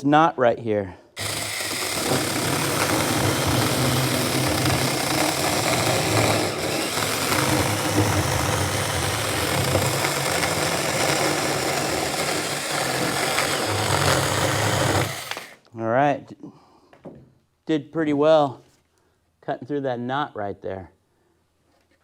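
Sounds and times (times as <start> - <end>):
electric chainsaw cutting wood: 1.2 - 15.6.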